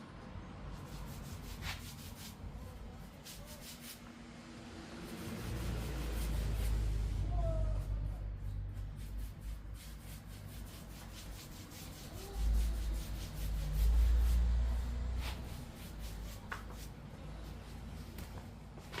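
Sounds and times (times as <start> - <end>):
stain rubbed onto wood: 0.8 - 2.4, 3.1 - 4.0, 5.0 - 7.1, 8.7 - 17.6.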